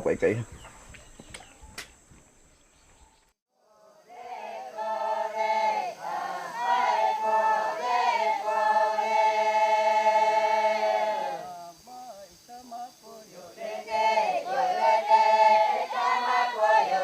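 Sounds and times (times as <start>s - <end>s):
group of voices chanting: 3.7s - 17.0s.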